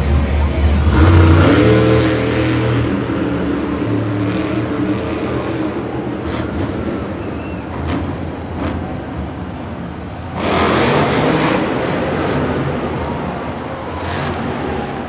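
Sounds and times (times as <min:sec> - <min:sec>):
monster truck engine rumbling: 0:00.0 - 0:15.0.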